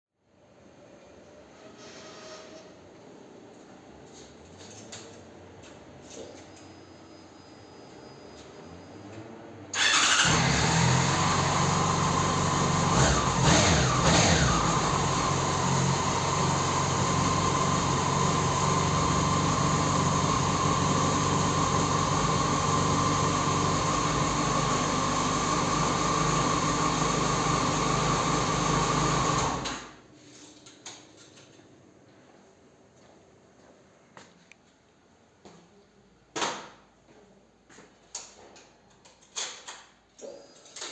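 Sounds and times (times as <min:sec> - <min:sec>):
motorcycle engine revving and idling: 0:09.8 - 0:29.6.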